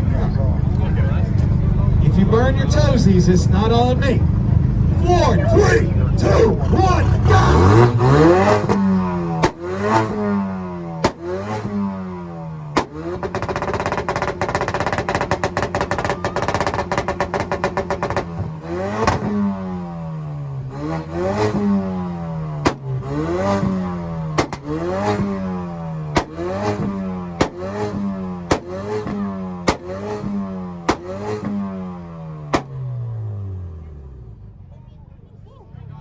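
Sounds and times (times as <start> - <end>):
car engine revving: 0.0 - 34.8
car engine crackling on launch limiter: 0.0 - 35.4
exhaust pops and bangs: 6.6 - 20.0, 20.6 - 33.2.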